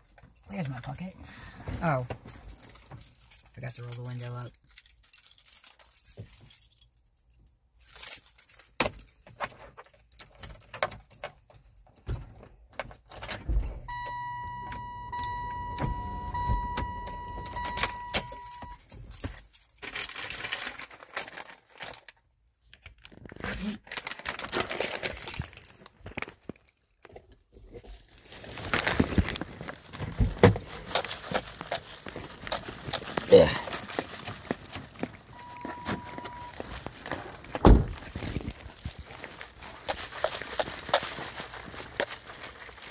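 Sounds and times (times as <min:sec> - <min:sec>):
car keys jangling: 0:00.0 - 0:22.3, 0:24.5 - 0:42.9
car electronic warning tone: 0:13.9 - 0:18.8, 0:35.3 - 0:36.7.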